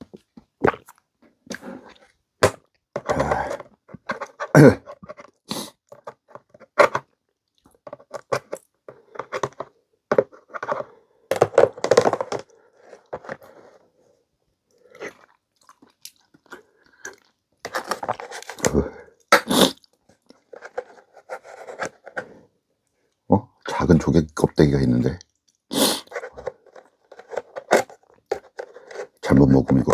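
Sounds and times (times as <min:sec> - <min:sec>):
person chewing food: 0:00.1 - 0:02.1, 0:14.8 - 0:18.8.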